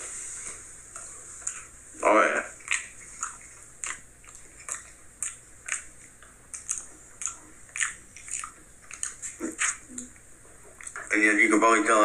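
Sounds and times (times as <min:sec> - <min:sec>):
person chewing with mouth smacks: 0:00.9 - 0:01.8, 0:02.5 - 0:11.1.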